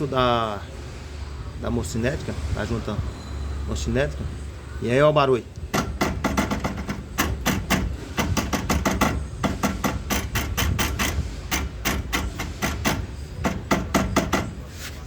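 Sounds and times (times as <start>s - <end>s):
driveshaft clicking and knocking: 5.6s - 14.7s.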